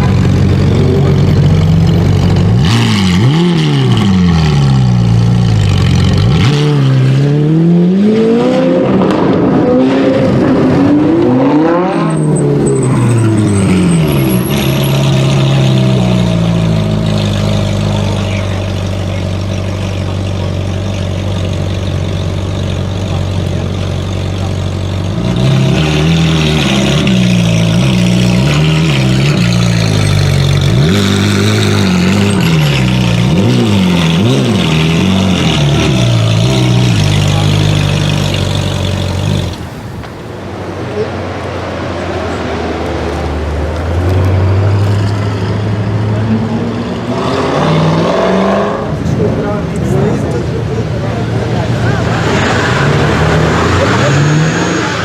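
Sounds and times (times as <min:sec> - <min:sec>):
sports car engine revving: 0:00.0 - 0:40.6.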